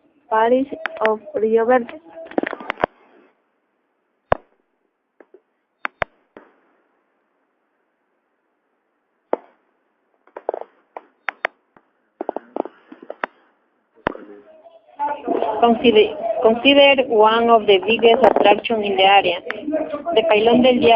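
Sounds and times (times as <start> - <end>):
sharp clicks and knocks: 10.3 - 13.4.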